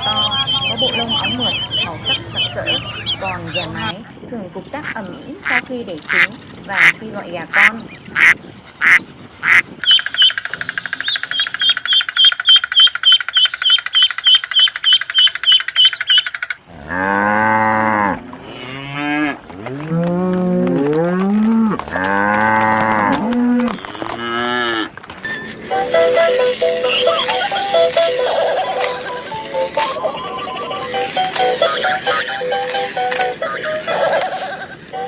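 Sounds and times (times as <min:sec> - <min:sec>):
high repeated chirps: 0:00.0 - 0:03.9, 0:09.8 - 0:16.6, 0:25.2 - 0:35.0
cattle mooing: 0:16.7 - 0:24.9.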